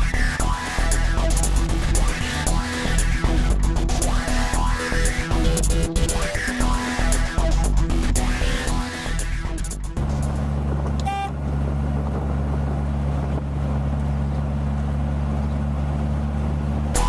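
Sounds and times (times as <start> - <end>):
trike engine running: 0.0 - 17.0
vehicle horn toot: 11.0 - 11.4.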